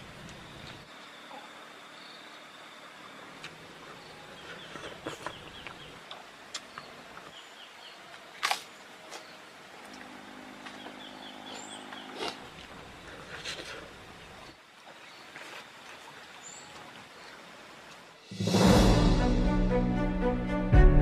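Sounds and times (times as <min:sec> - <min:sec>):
bird chirping: 0:03.9 - 0:08.1, 0:10.6 - 0:12.4.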